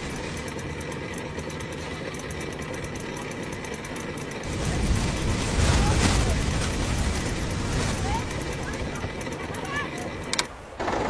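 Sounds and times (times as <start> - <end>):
motor running: 0.0 - 11.0
deep rumble: 4.4 - 10.4.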